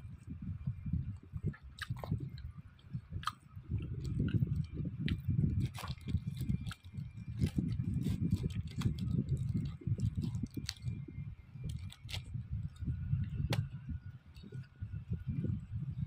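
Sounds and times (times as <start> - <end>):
person chewing: 1.5 - 11.0, 11.6 - 12.3.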